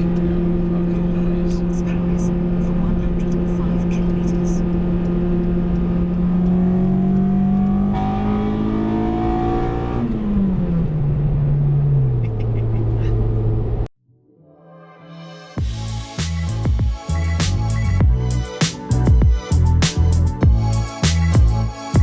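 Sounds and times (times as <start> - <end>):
car engine accelerating: 0.0 - 13.9.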